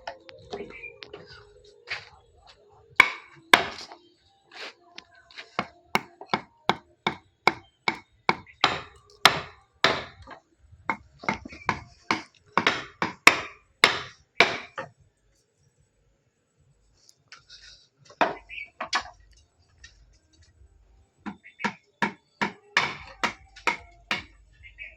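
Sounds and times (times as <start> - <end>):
hammer striking wood: 3.0 - 3.9, 5.6 - 14.9, 21.3 - 24.4.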